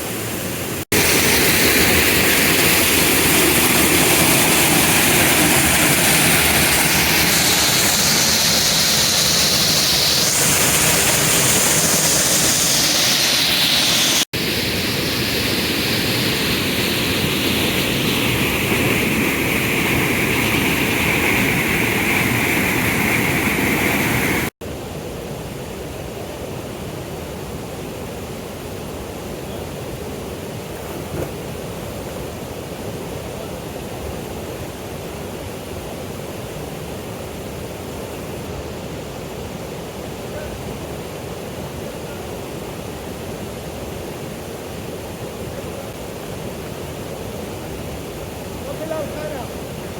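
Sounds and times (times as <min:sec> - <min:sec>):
waterfall rushing: 0:00.0 - 0:24.5.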